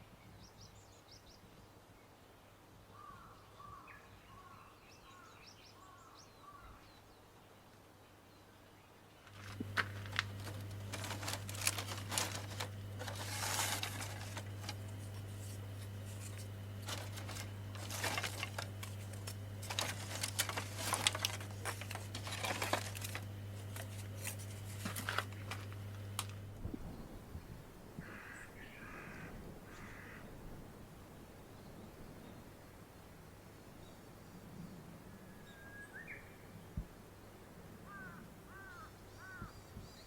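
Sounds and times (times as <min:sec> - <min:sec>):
rustling and scraping handling: 0:09.2 - 0:26.5
steady low hum: 0:09.3 - 0:29.6.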